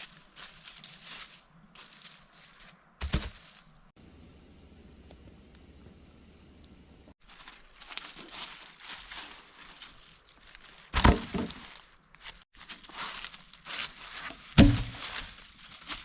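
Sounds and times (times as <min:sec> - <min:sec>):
crinkly rustling and crunching: 0:00.0 - 0:03.9, 0:07.2 - 0:16.0
heavy thud: 0:14.6 - 0:15.0.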